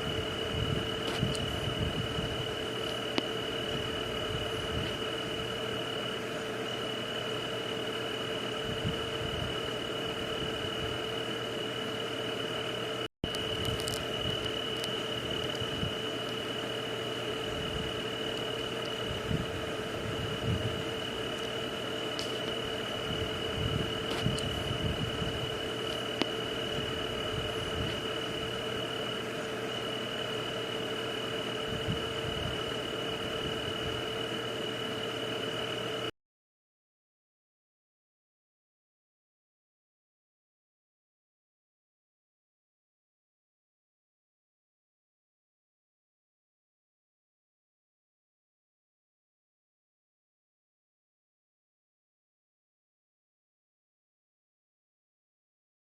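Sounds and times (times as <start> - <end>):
faint low hum: 0.0 - 36.1
high-pitched insect drone: 0.0 - 36.1
night ambience hiss: 0.0 - 36.1.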